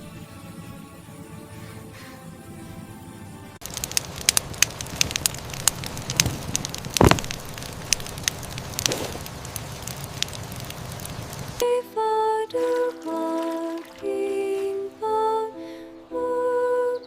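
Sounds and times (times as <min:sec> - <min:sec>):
fire crackling and popping: 0:03.6 - 0:11.6.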